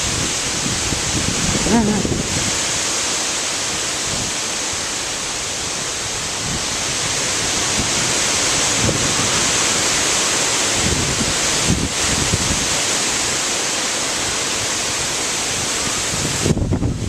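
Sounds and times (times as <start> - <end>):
wind buffeting microphone: 0.0 - 2.9, 6.0 - 10.0, 10.7 - 13.0, 15.6 - 17.0
strong gusty wind rushing: 0.0 - 3.0, 3.7 - 13.5, 15.4 - 17.0.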